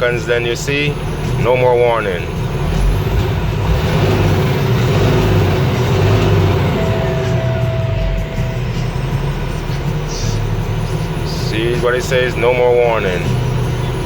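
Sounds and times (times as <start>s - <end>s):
diesel truck engine running: 0.0s - 14.0s
steady single tone: 5.0s - 13.9s.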